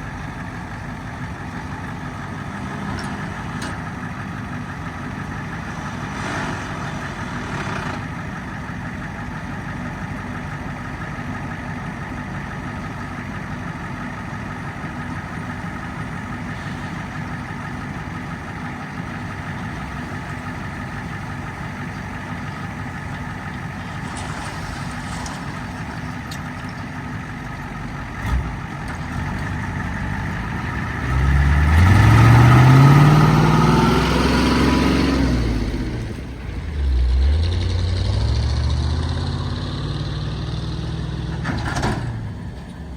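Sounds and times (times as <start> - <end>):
tractor engine drone: 0.0 - 42.9
machinery whine: 14.6 - 37.2.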